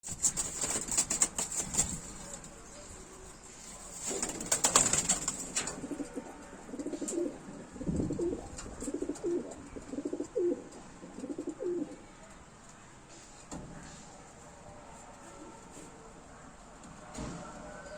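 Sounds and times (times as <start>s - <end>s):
pigeon cooing: 5.6s - 12.0s.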